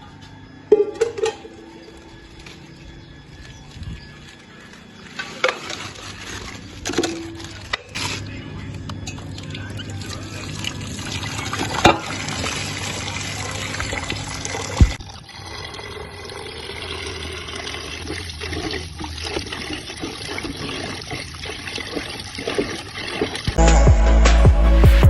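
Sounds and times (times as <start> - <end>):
water pouring and trickling: 9.1 - 23.6.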